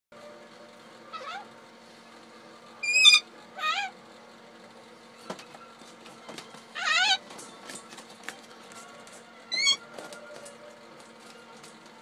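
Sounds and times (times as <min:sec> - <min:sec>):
parrot call: 0:01.1 - 0:01.5, 0:02.8 - 0:04.0, 0:06.8 - 0:07.2, 0:09.5 - 0:09.9.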